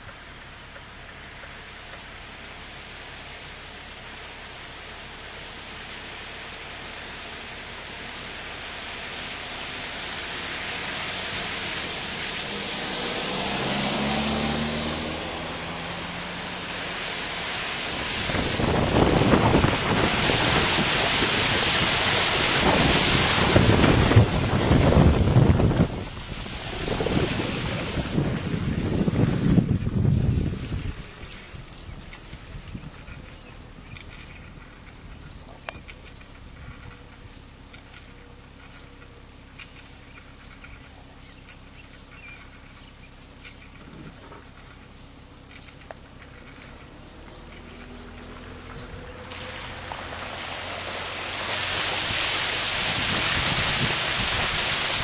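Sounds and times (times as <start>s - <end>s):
rushing floodwater: 1.8s - 32.5s, 47.4s - 55.0s
small splashes and crackles: 7.4s - 29.5s, 30.5s - 55.0s
wind buffeting microphone: 17.8s - 35.9s, 47.3s - 55.0s.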